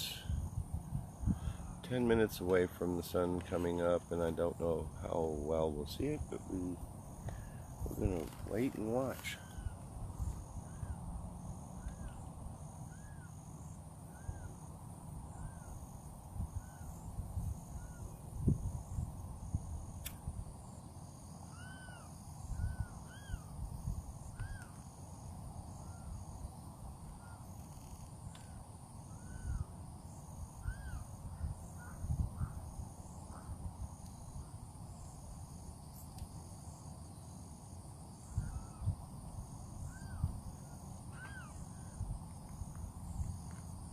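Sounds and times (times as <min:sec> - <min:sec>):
wind on microphone: 0:00.0 - 0:02.4, 0:05.8 - 0:12.6, 0:15.3 - 0:20.5, 0:30.6 - 0:34.5, 0:38.2 - 0:43.9
insect chirring: 0:00.0 - 0:43.9
birds calling: 0:06.4 - 0:14.7, 0:21.4 - 0:23.5, 0:30.5 - 0:32.7, 0:39.8 - 0:42.0.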